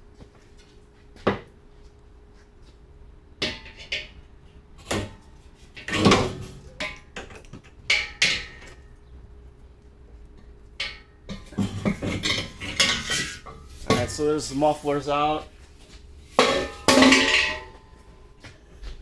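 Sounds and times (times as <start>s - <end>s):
metal clanks from hand tools: 10.8s - 14.4s, 16.4s - 17.8s.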